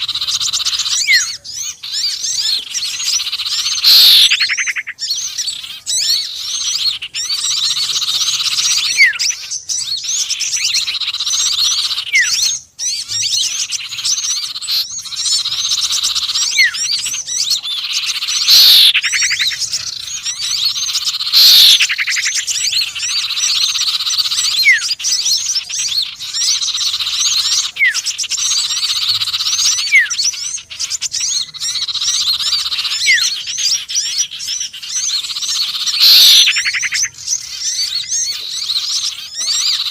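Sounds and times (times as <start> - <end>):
small birds chirping and twittering: 0.0 - 39.9
sweeping bird call: 0.0 - 39.9.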